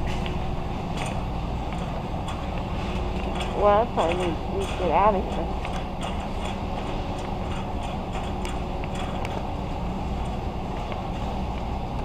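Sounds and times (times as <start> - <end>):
steady low hum: 0.0 - 12.0
light clicks and rattles: 0.2 - 9.4.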